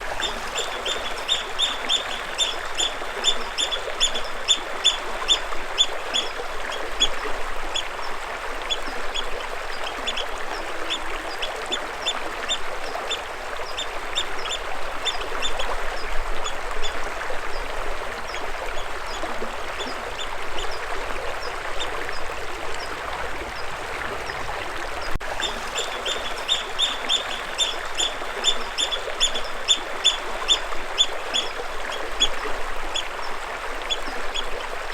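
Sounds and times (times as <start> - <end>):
water rushing: 0.0 - 34.9
bird chirping: 0.2 - 5.4, 25.4 - 30.2.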